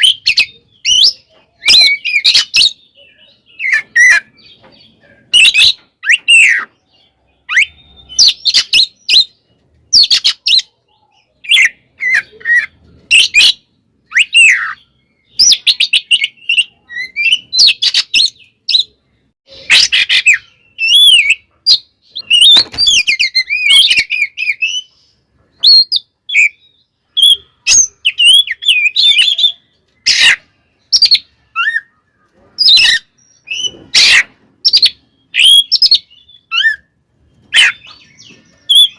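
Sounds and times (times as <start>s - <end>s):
bird singing whistled notes: 0.0s - 38.9s
bird harsh rasping notes: 11.3s - 38.9s.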